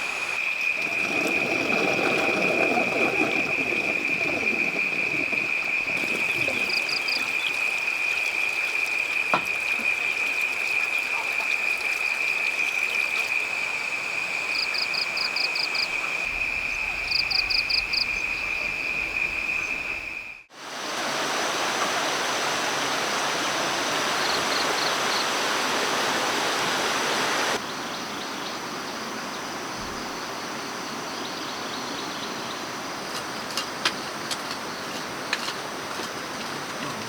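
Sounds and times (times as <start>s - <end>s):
rushing water: 0.0s - 27.6s.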